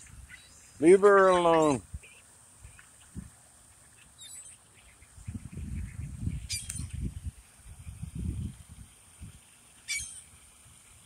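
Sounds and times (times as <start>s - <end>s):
sharp bird chirps: 4.2s - 7.0s, 9.9s - 10.2s.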